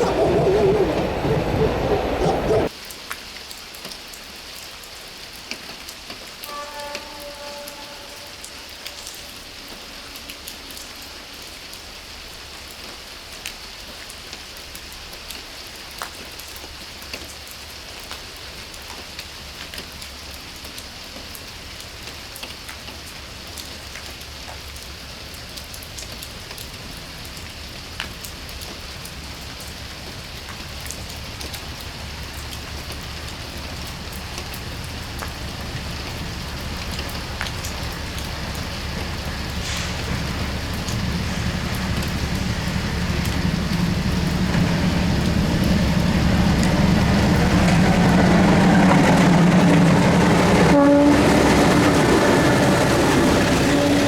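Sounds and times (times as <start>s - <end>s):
rain falling: 0.0s - 54.0s
low rumble: 32.2s - 54.0s.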